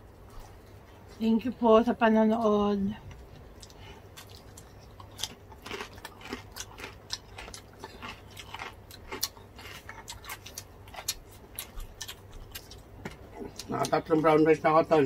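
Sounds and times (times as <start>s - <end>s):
chewing: 3.1s - 14.4s
crispy pork crunching: 3.1s - 15.0s.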